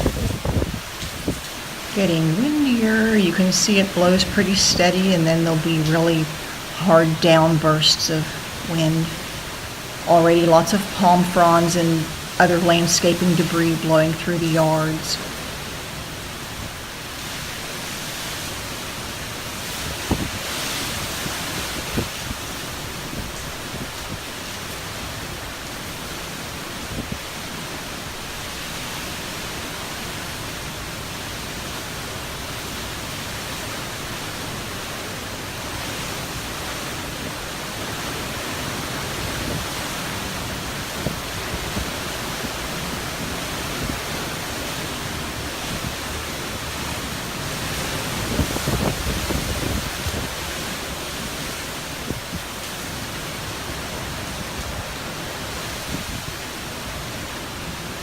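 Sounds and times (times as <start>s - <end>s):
wind gust buffeting microphone: 0.0s - 5.0s, 19.6s - 24.3s, 47.5s - 52.6s
strong wind blowing: 0.0s - 24.4s, 35.8s - 57.1s.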